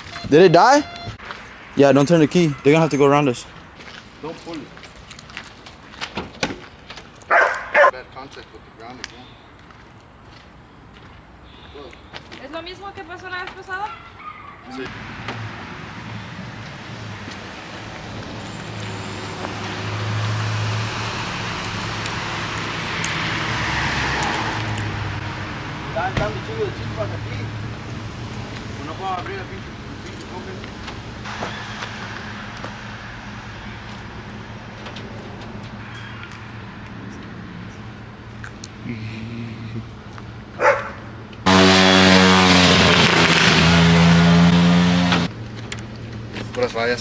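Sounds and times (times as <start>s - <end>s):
vehicle horn: 0.0s - 1.4s, 41.4s - 45.3s
vehicle passing with tyre noise: 14.2s - 47.0s.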